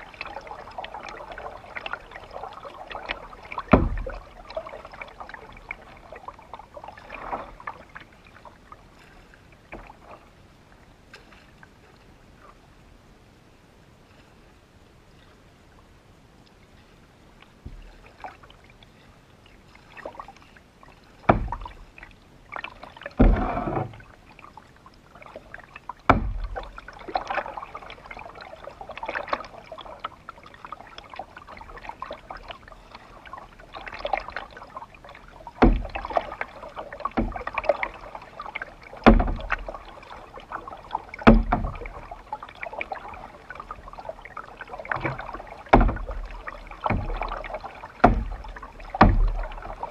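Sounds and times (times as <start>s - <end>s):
paddle strokes splashing: 0.0s - 12.8s, 13.9s - 49.9s
sharp knocks: 3.7s - 4.1s, 21.3s - 21.6s, 26.1s - 26.5s, 41.3s - 41.8s, 48.0s - 48.4s, 49.0s - 49.4s.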